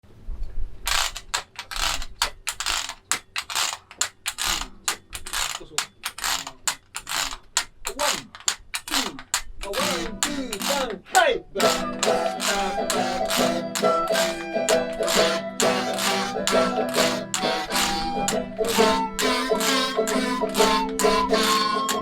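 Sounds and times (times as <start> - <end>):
harmonica train imitation: 9.8 - 10.9, 11.6 - 22.0.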